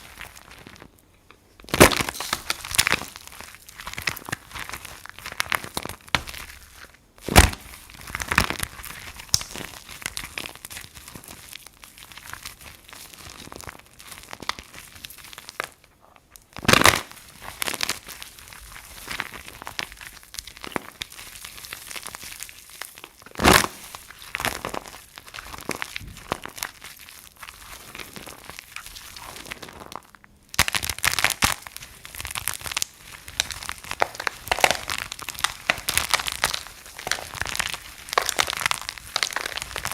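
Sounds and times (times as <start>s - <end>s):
soap crunching: 1.6s - 15.8s, 16.6s - 39.9s.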